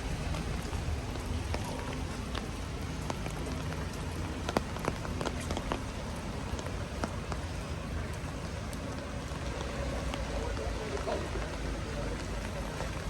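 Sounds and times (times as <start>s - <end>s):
raindrops ticking close by: 0.0s - 13.0s
steady rain falling: 0.0s - 13.0s.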